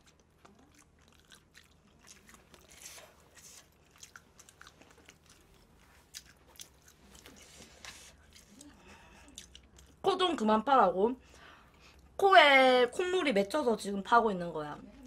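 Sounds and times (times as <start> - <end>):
chewing fried chicken: 0.0 - 10.1.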